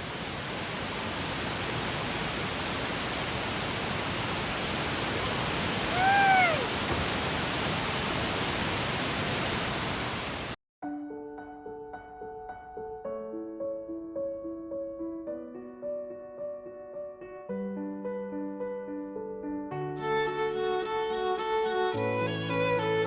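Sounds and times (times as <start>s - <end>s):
waterfall roaring: 0.0s - 10.6s
high rising and falling call: 5.9s - 6.8s
soft piano music: 10.8s - 23.0s.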